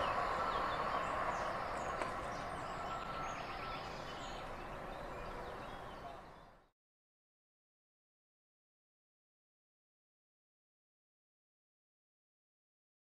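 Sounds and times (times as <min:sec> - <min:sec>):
train rumbling along track: 0:00.0 - 0:06.2
birds chirping faintly: 0:00.0 - 0:06.7.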